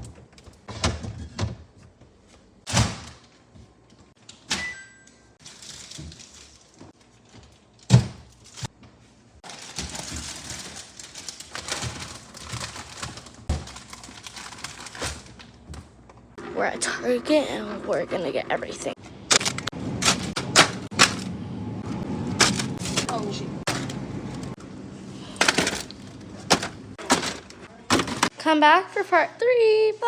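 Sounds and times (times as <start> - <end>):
continuous rustling: 5.4 - 15.4.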